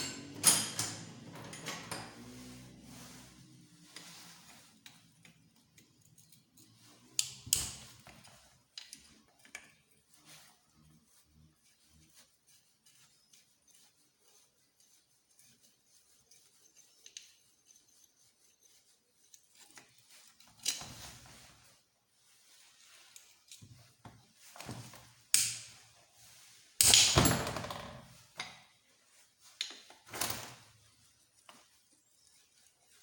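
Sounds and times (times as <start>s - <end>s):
metal parts knocking and clunking: 0.0s - 2.1s.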